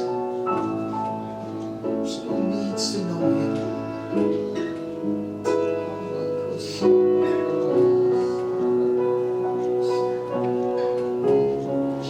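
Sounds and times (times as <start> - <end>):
slow worship music on piano: 0.0 - 12.0.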